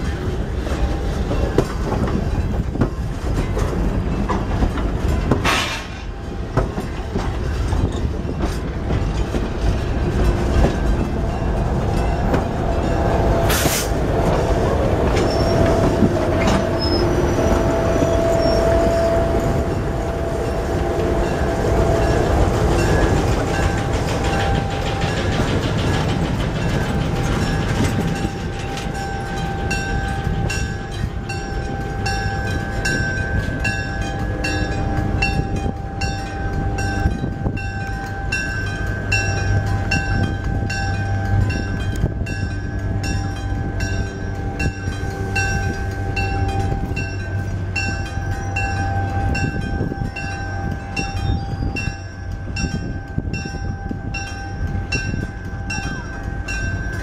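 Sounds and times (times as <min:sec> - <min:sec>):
rumble of train wheels: 0:00.0 - 0:57.0
clicking over rail joints: 0:22.0 - 0:49.8.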